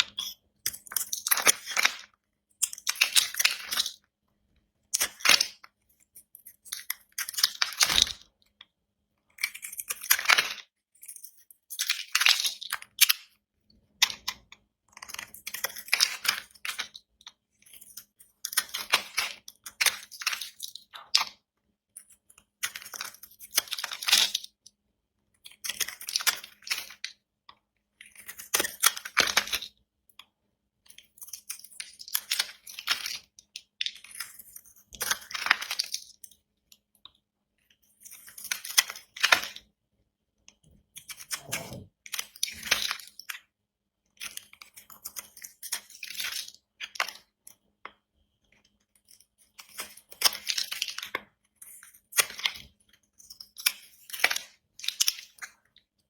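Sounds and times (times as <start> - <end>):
knife cutting dry soap: 40.5 - 43.0.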